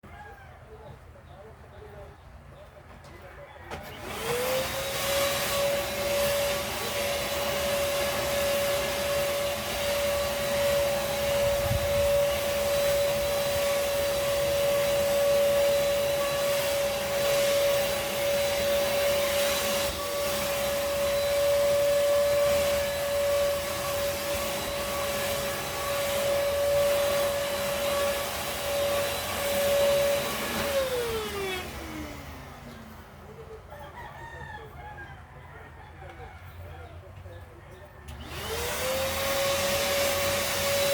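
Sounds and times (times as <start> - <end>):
vacuum cleaner running: 3.7 - 33.3, 38.1 - 40.9.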